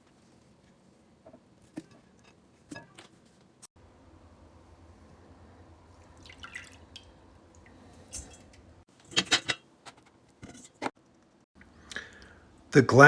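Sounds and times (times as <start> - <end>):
water dripping and trickling: 6.0 - 8.6.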